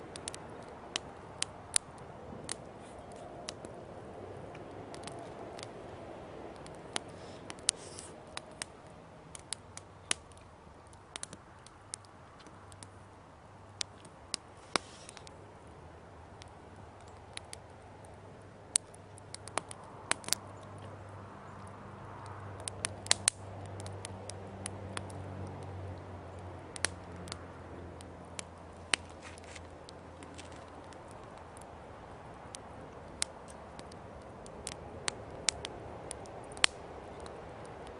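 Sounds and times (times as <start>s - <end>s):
campfire crackling: 0.0s - 37.9s.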